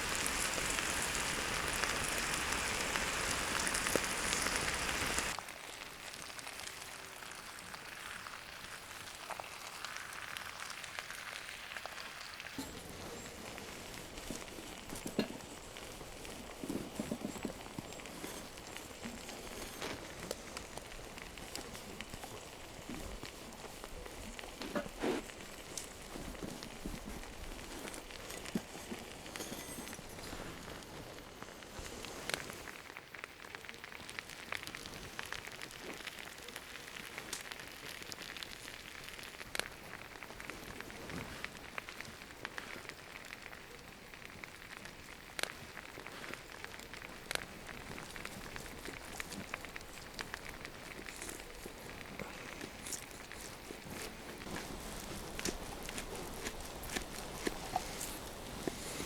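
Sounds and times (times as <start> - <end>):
steady hiss: 0.0 - 6.0
campfire crackling: 0.0 - 59.0
food cooking hiss: 0.0 - 59.0.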